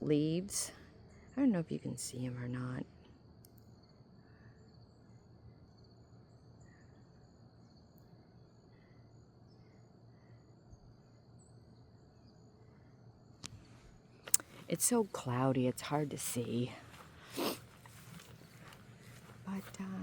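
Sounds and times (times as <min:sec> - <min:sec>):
insects trilling: 0:00.2 - 0:20.0.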